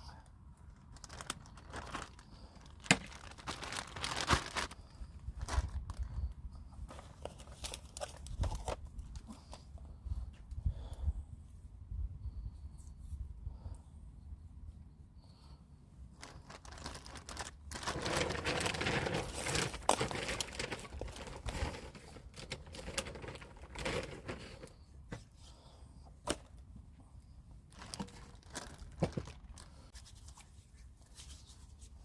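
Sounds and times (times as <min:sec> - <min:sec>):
hands rustling and crinkling: 0:00.6 - 0:09.7, 0:16.1 - 0:25.4, 0:27.7 - 0:32.0.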